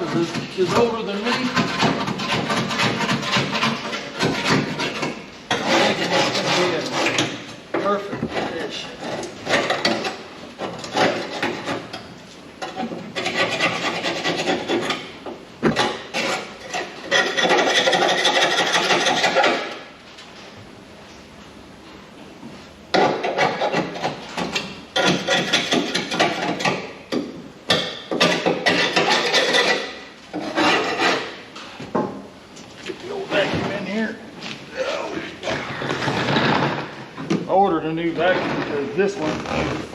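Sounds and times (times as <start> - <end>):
scraping rust off sheet metal: 0.0 - 19.9, 22.9 - 26.9, 27.7 - 31.6.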